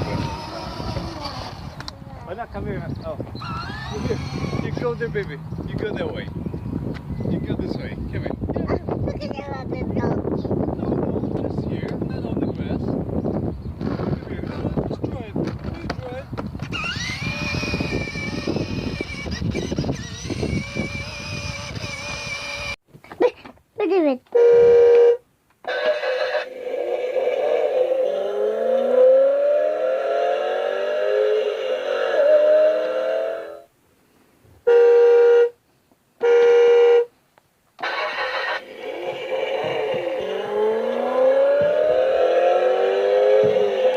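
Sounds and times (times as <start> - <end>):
ride-on toy motorbike whine: 0.0 - 2.5, 3.4 - 6.2, 16.6 - 22.8, 24.4 - 29.8, 37.8 - 42.0
electronic horn beeps: 24.3 - 26.5, 34.7 - 35.6, 36.2 - 37.1
rough low rumble: 38.2 - 43.9.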